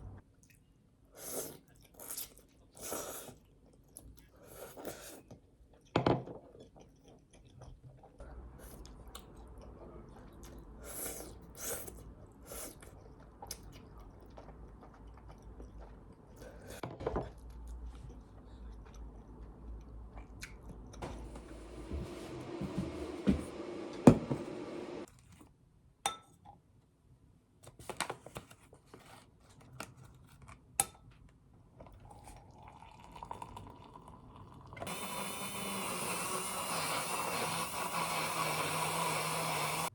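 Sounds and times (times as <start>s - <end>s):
person chewing and crunching food: 1.6s - 21.2s.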